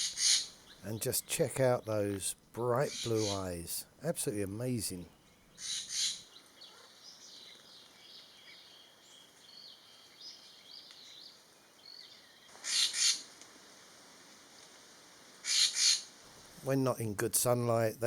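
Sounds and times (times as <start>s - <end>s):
birds chirping and twittering: 0.0s - 13.2s.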